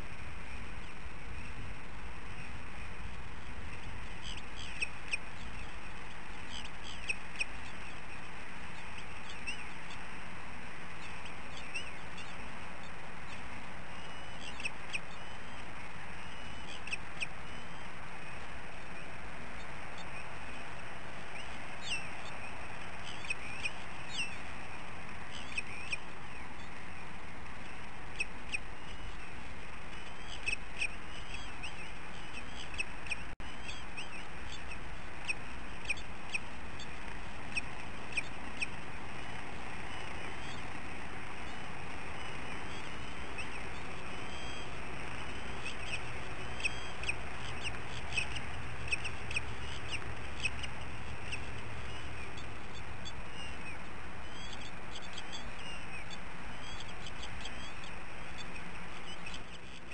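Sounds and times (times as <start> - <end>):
steady background noise: 0.0 - 59.9
high bird chirps: 41.4 - 59.9.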